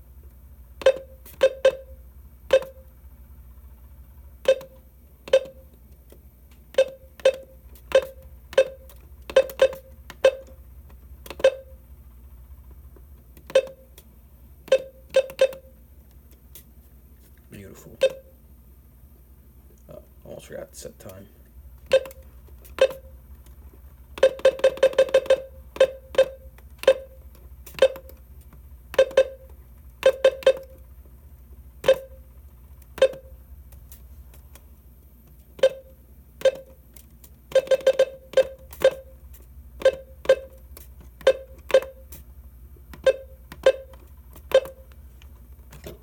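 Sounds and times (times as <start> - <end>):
keypress beeps: 0.8 - 2.9, 4.4 - 5.8, 6.7 - 10.6, 11.2 - 11.8, 13.4 - 14.0, 14.6 - 15.8, 18.0 - 18.4, 21.8 - 23.2, 24.2 - 28.2, 28.9 - 30.8, 31.8 - 33.4, 35.6 - 36.8, 37.5 - 42.2, 42.9 - 45.0.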